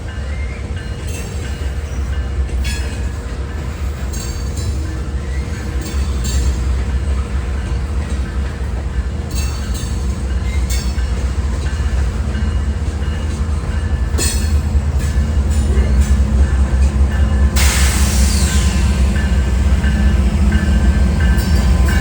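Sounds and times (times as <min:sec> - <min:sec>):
train rumbling past: 0:00.0 - 0:22.0
metallic wheel squeals and clanks: 0:17.6 - 0:20.0.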